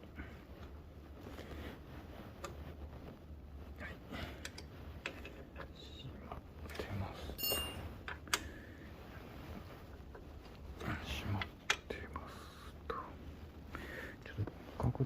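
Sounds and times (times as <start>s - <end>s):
low steady hum: 0.0s - 15.0s
metal hand tools clinking: 7.4s - 7.8s.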